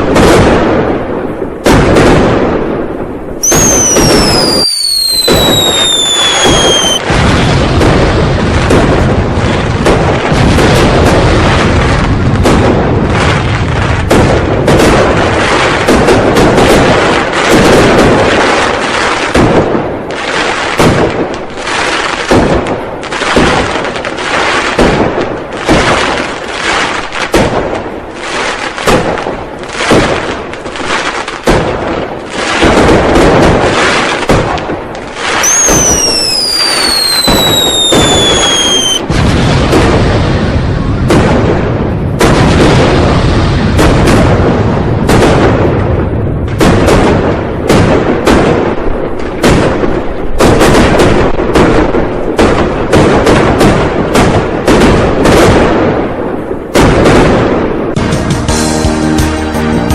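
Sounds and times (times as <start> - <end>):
firecrackers banging: 0.0 - 59.9
firework whistle falling in pitch: 3.4 - 7.0, 35.4 - 39.0.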